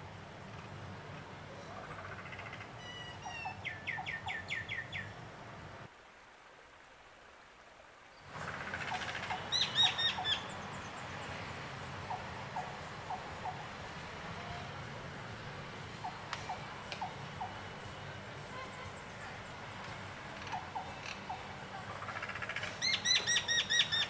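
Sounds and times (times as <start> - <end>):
small birds chirping: 1.9 - 5.2, 8.2 - 13.7, 18.6 - 24.0
steady low hum: 8.3 - 23.5.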